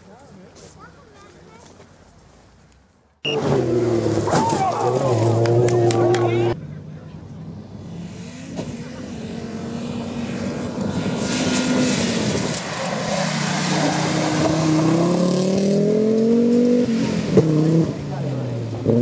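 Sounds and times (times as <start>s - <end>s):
rally car engine revving: 3.3s - 6.7s, 7.4s - 19.0s.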